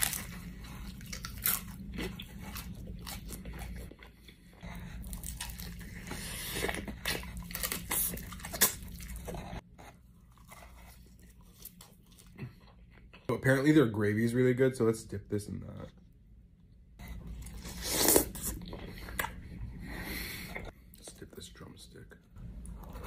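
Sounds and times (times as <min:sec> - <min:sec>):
crunching fried chicken: 0:00.0 - 0:04.1
chewing: 0:00.0 - 0:13.3.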